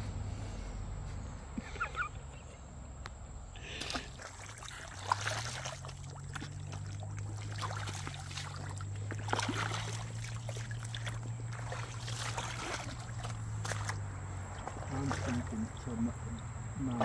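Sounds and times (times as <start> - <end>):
steady low hum: 0.0 - 17.0
creek water splashing: 3.5 - 17.0.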